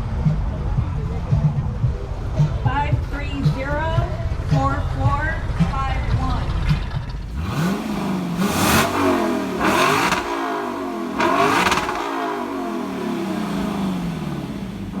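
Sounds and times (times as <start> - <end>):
car engine accelerating: 6.2 - 15.0
rushing burst on gear shift: 7.2 - 15.0.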